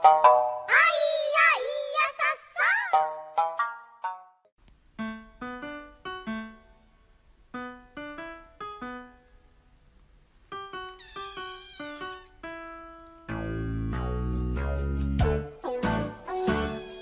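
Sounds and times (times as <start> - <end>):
slow piano melody: 5.0 - 9.7, 10.5 - 16.8.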